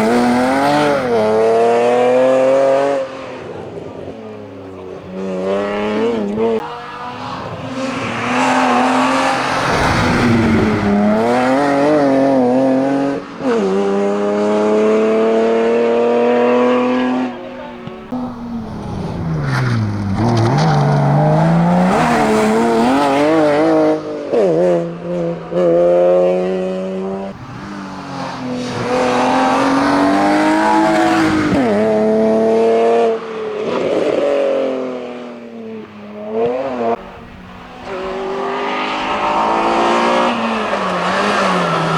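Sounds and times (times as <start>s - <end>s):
race car engine revving: 0.0s - 35.2s, 36.2s - 41.9s.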